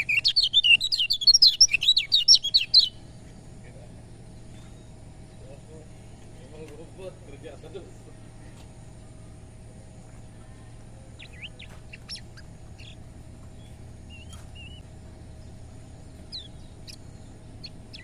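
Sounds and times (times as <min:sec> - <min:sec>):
bird warbling: 0:00.0 - 0:03.4, 0:11.0 - 0:14.8, 0:16.0 - 0:18.0
bird chirping: 0:00.0 - 0:18.0
steady low hum: 0:00.0 - 0:18.0.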